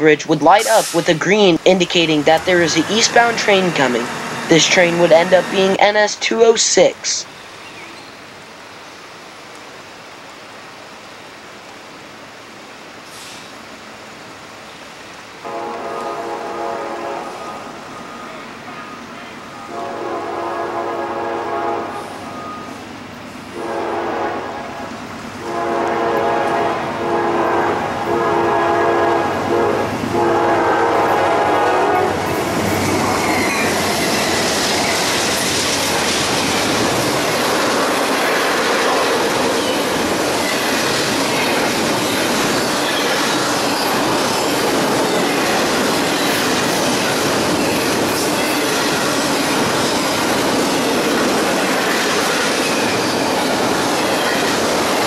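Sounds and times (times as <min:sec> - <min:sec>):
locomotive air horn blasts: 0:15.4 - 0:17.6, 0:19.7 - 0:22.1, 0:23.6 - 0:24.8, 0:25.4 - 0:32.2
train wheels rumbling on rail: 0:15.4 - 0:55.0.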